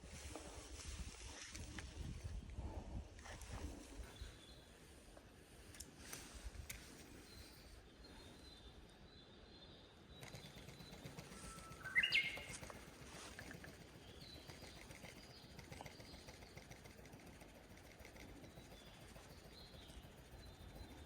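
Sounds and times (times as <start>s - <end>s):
faint outdoor background: 0.0s - 21.0s
bird call rising in pitch: 11.4s - 12.5s.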